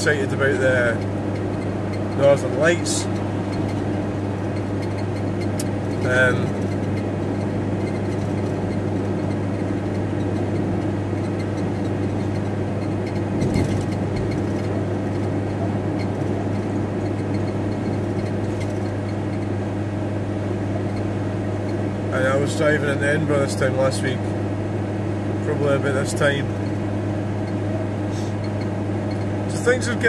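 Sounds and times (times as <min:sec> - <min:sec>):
van bump: 0:00.0 - 0:23.2
van engine and road drone: 0:00.0 - 0:30.0.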